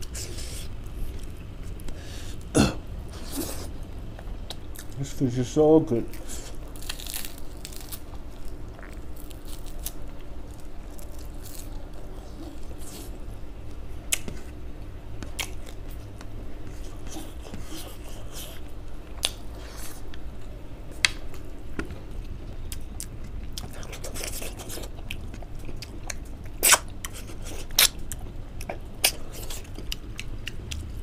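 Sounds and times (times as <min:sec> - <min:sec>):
steady low hum: 0:00.0 - 0:31.0
person chewing food: 0:06.1 - 0:13.3, 0:15.2 - 0:20.5, 0:21.3 - 0:31.0.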